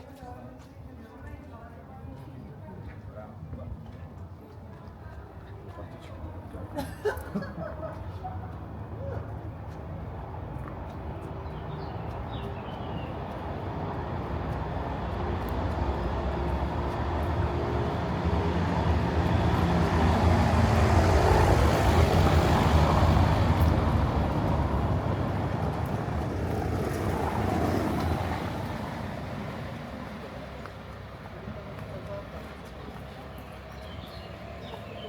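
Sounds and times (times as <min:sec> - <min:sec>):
vehicle passing: 0:10.3 - 0:35.0.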